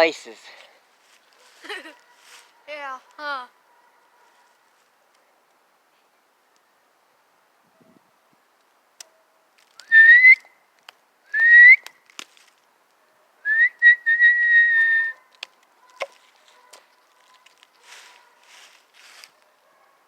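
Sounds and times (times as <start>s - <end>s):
person whistling: 9.9s - 10.4s, 11.3s - 11.8s, 13.5s - 15.1s.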